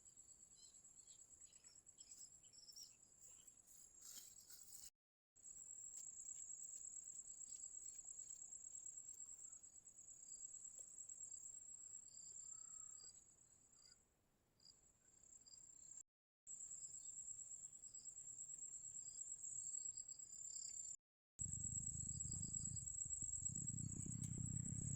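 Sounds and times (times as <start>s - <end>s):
crickets trilling: 21.4s - 24.9s
low rumble: 21.4s - 24.9s.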